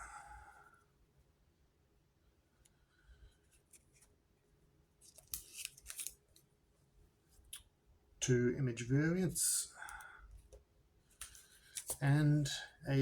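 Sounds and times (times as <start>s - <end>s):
trading cards swishing and rubbing: 5.0s - 6.2s, 11.2s - 12.4s.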